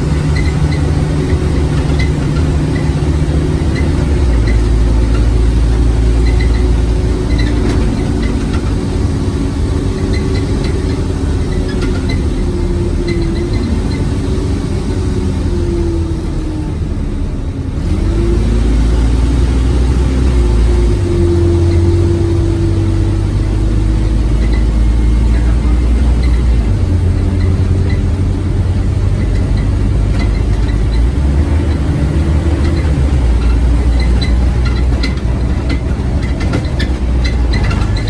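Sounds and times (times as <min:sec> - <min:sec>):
bus diesel engine accelerating: 0:00.0 - 0:38.0.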